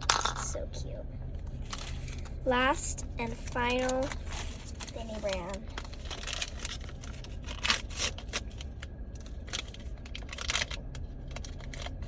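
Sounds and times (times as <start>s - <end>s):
plastic packaging crinkling and tearing: 1.5s - 2.3s, 3.2s - 12.0s.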